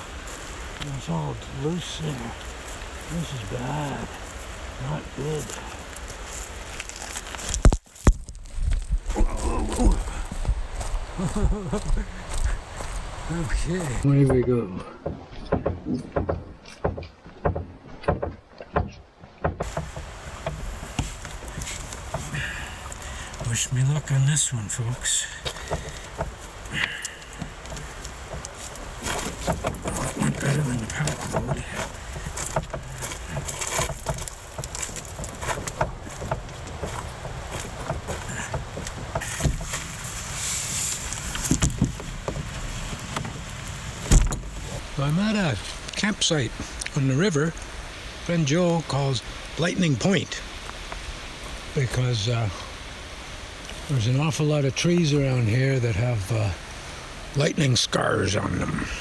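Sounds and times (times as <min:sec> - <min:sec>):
steady rushing hiss: 0:00.0 - 0:08.0, 0:08.7 - 0:14.1, 0:19.6 - 0:59.0
footsteps crunching on trail: 0:00.0 - 0:14.1, 0:19.5 - 0:49.7
water swishing: 0:14.8 - 0:57.5
knocks against canoe hull: 0:15.0 - 0:23.5, 0:25.4 - 0:28.4, 0:31.0 - 0:40.0, 0:41.4 - 0:43.4, 0:44.0 - 0:44.7.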